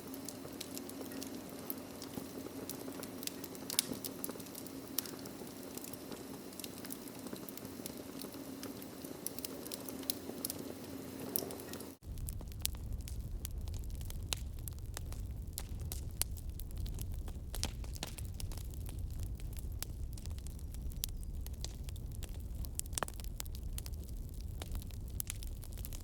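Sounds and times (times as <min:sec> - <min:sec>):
wood fire crackling: 0:00.0 - 0:26.0
low steady rumble: 0:12.0 - 0:26.0.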